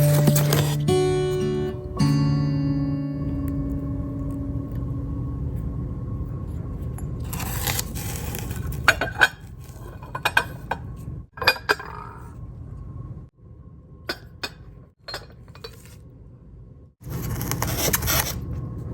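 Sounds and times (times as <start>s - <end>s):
guitar music: 0.0s - 5.2s
low hum: 0.0s - 8.9s.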